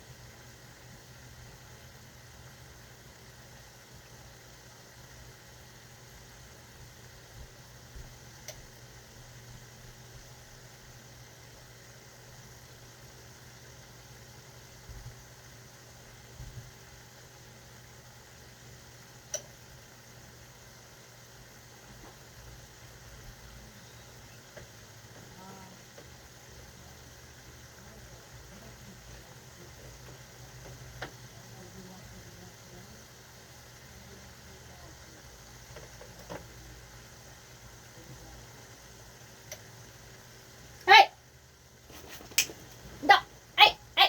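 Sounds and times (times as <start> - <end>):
low machine hum: 0.0 - 41.9.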